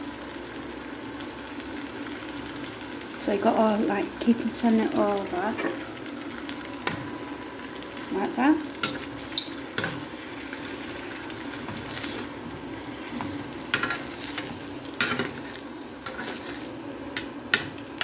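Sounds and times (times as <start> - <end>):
chicken sizzling in hot oil: 0.0 - 18.0
metal tongs clicking on pan: 8.8 - 10.0, 13.7 - 14.0.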